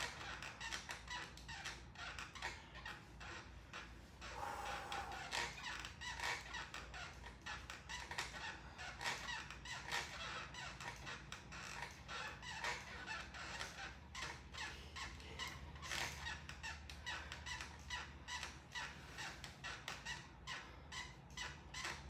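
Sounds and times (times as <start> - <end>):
exercise bike squeaking and creaking: 0.0 - 22.0
low steady hum: 3.9 - 6.2.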